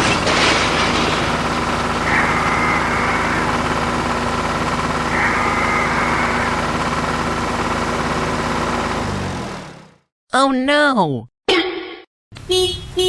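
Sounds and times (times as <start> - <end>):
engine idling: 0.0 - 10.1
high whine: 1.2 - 7.4.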